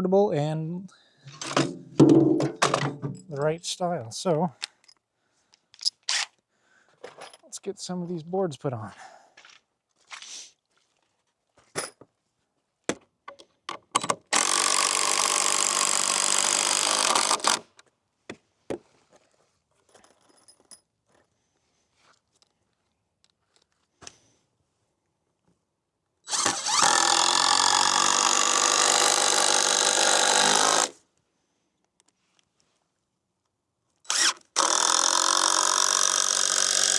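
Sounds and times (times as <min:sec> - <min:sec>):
power drill driving screws: 0:01.3 - 0:03.2, 0:14.0 - 0:17.7, 0:26.3 - 0:30.9, 0:34.1 - 0:36.9
clicks and knocks: 0:01.3 - 0:03.4.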